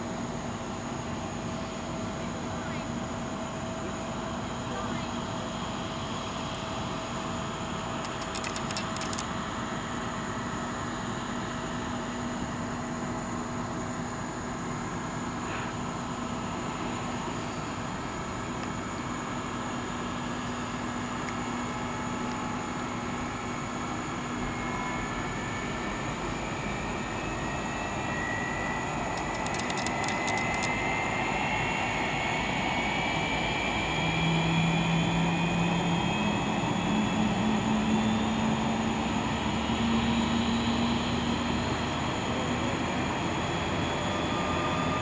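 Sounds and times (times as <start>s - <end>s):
jet engine whine rising: 0.0s - 45.0s
short burst of ticking: 8.0s - 9.3s, 29.2s - 30.8s.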